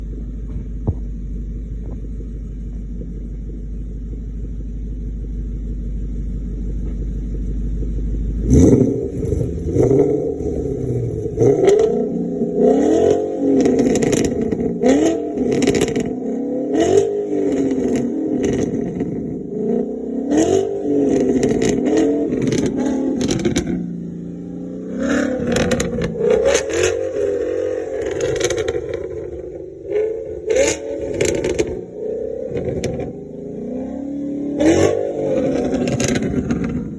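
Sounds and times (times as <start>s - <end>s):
car engine idling: 0.0s - 36.9s
exhaust crackles: 0.0s - 36.9s
engine revving: 8.3s - 36.9s.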